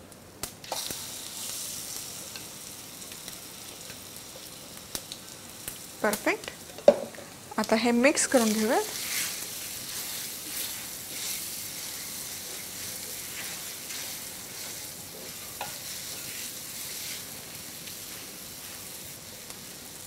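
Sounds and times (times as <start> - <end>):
paste sizzling in hot oil: 0.6 - 20.0
spatula swishing in pan: 8.4 - 19.2.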